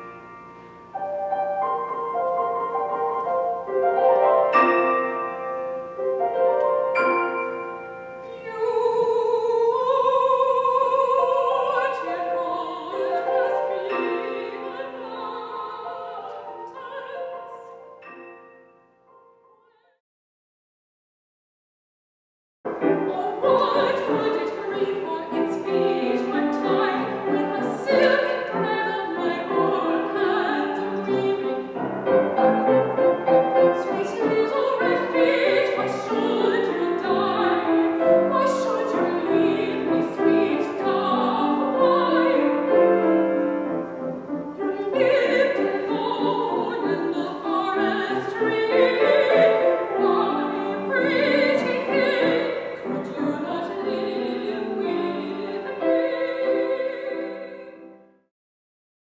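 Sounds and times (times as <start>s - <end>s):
instrumental accompaniment: 0.0s - 8.6s, 12.5s - 19.8s, 22.7s - 58.0s
operatic singing: 8.2s - 17.8s, 22.7s - 57.9s.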